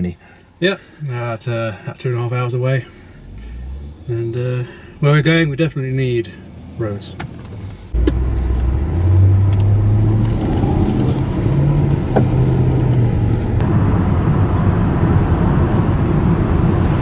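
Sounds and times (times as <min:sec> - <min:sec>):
road rumble: 0:00.0 - 0:17.0
car engine accelerating: 0:02.6 - 0:17.0.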